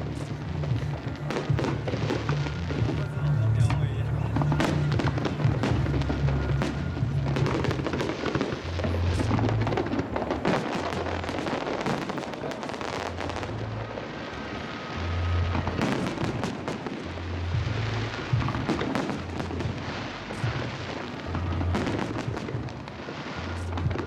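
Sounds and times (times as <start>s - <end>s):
music with deep bass line: 0.0s - 10.4s, 15.0s - 16.4s, 17.1s - 22.8s, 23.4s - 24.0s
fireworks bursting and crackling: 0.0s - 24.0s.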